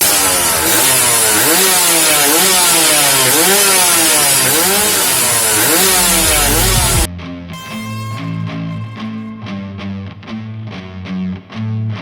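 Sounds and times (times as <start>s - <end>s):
two-stroke motorcycle engine revving: 0.0s - 7.1s.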